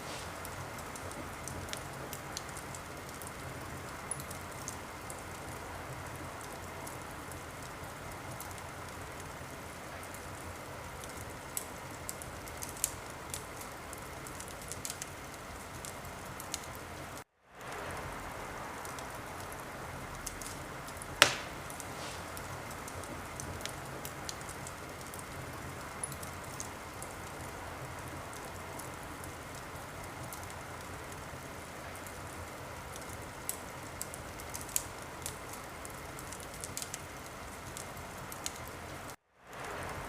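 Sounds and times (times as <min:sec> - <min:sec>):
wood fire crackling: 0:00.0 - 0:40.0
loud pop of fire: 0:21.2 - 0:22.5.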